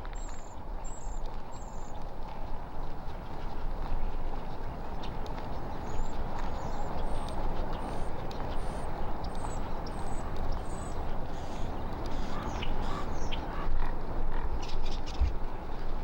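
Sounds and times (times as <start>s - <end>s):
bird chirping: 5.8s - 13.4s.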